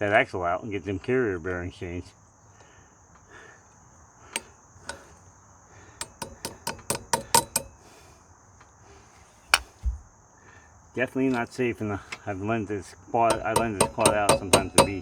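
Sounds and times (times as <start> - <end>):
crickets chirping: 0.0 - 15.0
metal tools tapping on metal: 4.4 - 5.2, 6.0 - 8.0, 13.2 - 15.0.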